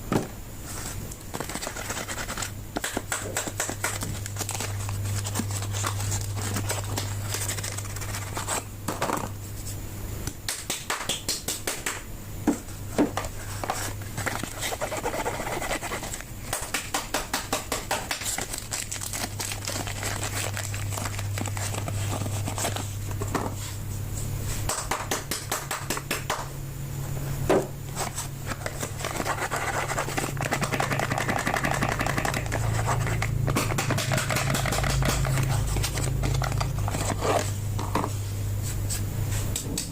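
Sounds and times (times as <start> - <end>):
steady low hum: 0.0 - 39.9
soap wrappers crinkling and tearing: 18.2 - 22.8
scratching and scraping: 28.0 - 37.6.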